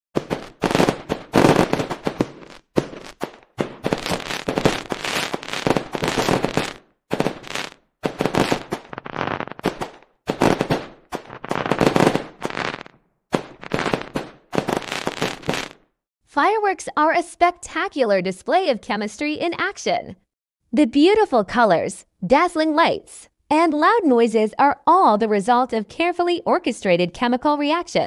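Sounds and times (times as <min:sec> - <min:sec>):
fireworks bursting and crackling: 0:00.2 - 0:15.8.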